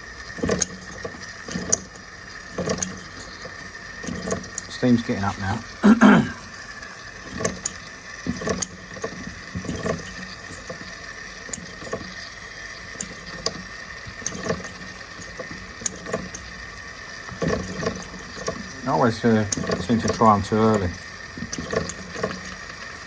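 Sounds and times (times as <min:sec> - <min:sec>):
steam boiler hissing: 0:00.0 - 0:23.0
small ticks and pops: 0:00.2 - 0:04.9, 0:07.0 - 0:23.0.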